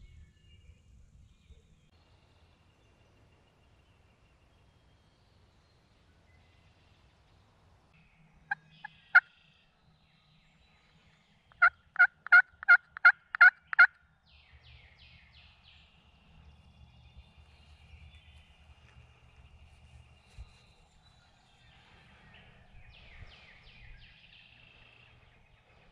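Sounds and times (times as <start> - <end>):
small bird singing: 0.0 - 25.9
turkey yelping: 11.6 - 13.9.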